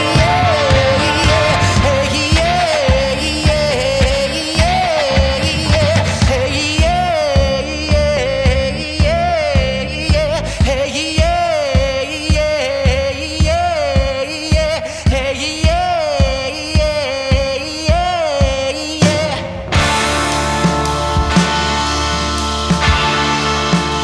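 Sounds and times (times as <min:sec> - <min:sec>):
folk rock band playing: 0:00.0 - 0:07.1, 0:19.0 - 0:24.0.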